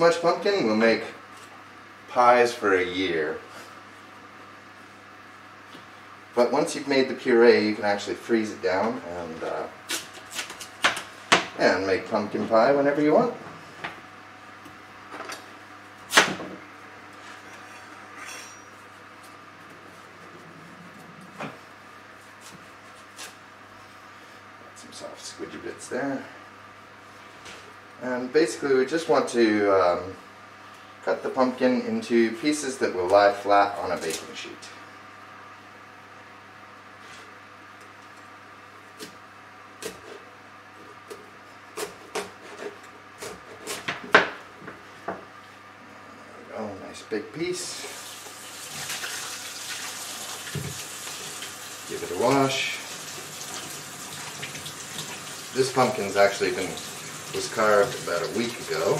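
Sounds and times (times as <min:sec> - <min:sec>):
knife scraping: 0:17.3 - 0:18.9.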